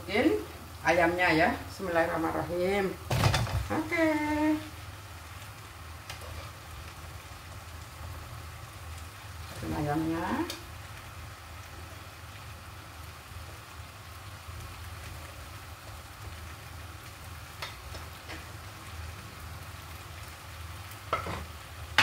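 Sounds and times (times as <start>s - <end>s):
chicken sizzling in a wok: 0.0s - 22.0s
spoon scraping wok: 6.1s - 6.7s.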